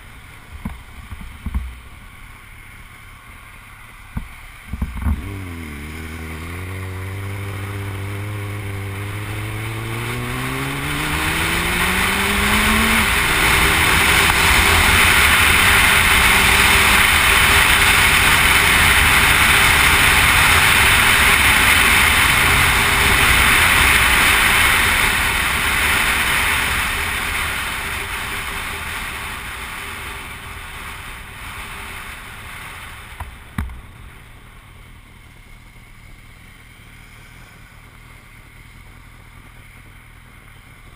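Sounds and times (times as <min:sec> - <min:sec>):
motorcycle engine accelerating: 0:00.0 - 0:40.9
loud rushing noise: 0:05.2 - 0:34.2.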